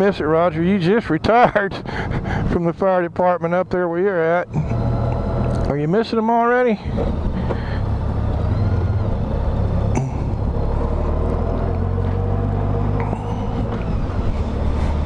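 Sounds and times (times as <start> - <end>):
motorcycle engine rumble: 3.8 - 15.0.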